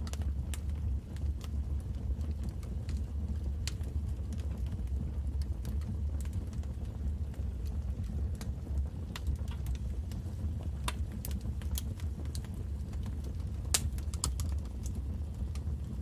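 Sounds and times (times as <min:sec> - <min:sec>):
low rumble of flame: 0:00.0 - 0:16.0
wood crackling and popping: 0:00.0 - 0:16.0.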